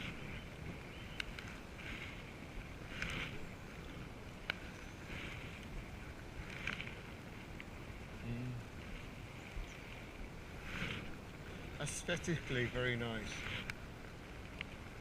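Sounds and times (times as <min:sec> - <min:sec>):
paddles splashing through water: 0:00.0 - 0:15.0.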